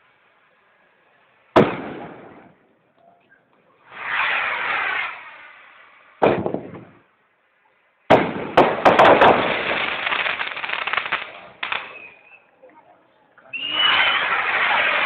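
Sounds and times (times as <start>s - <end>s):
firecrackers crackling: 0.0s - 3.0s, 3.6s - 7.2s, 8.0s - 12.7s, 13.5s - 15.0s
firework bang: 1.5s - 2.6s, 3.9s - 7.1s, 8.1s - 12.2s, 13.8s - 15.0s.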